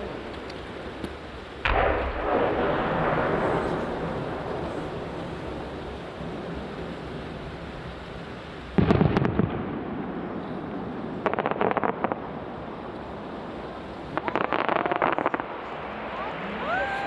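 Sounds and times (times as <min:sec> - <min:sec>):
firework crackling: 0:00.0 - 0:17.0
firework shell booming: 0:01.0 - 0:07.2, 0:08.8 - 0:12.8.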